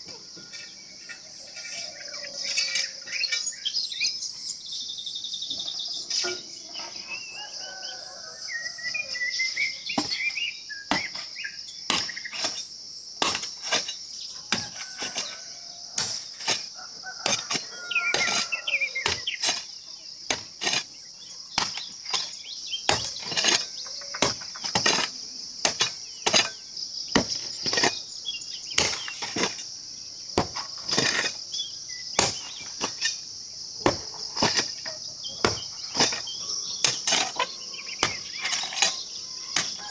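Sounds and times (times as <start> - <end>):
insects droning: 0.0 - 39.9
bird chirps: 0.4 - 12.4, 34.9 - 39.9.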